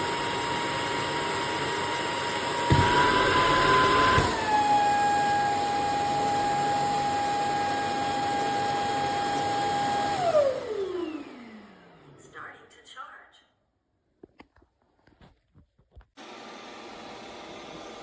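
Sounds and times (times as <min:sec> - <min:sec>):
vacuum dock suction motor whine: 0:00.0 - 0:12.2
knocks: 0:02.7 - 0:04.4.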